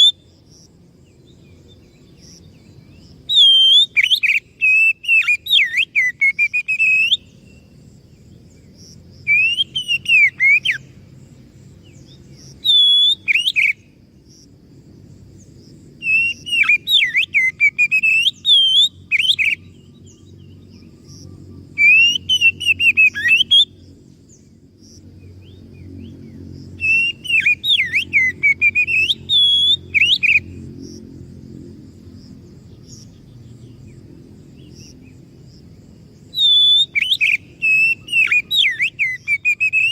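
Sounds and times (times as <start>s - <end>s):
bird singing whistled notes: 0.0s - 0.3s, 1.0s - 11.0s, 11.8s - 13.9s, 16.0s - 24.5s, 25.2s - 30.6s, 36.2s - 39.9s
low steady background hum: 0.0s - 39.9s.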